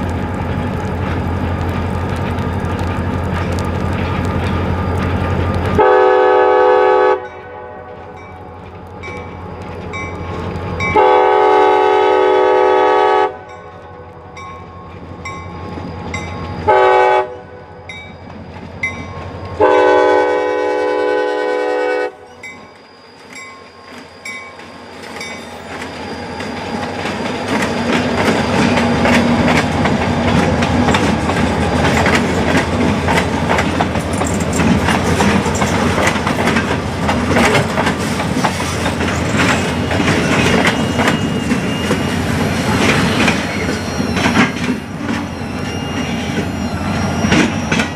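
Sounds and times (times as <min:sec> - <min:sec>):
train rumble and wheel clatter: 0:00.0 - 0:47.9
locomotive air horn: 0:05.7 - 0:08.2, 0:10.9 - 0:13.5, 0:16.7 - 0:17.8, 0:19.6 - 0:22.4.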